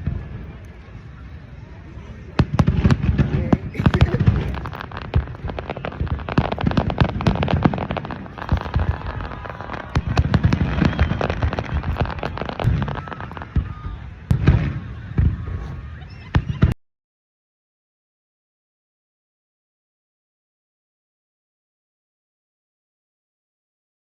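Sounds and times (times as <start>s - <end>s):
deep firework booms: 2.3s - 16.8s
firework pops and bangs: 2.4s - 16.8s.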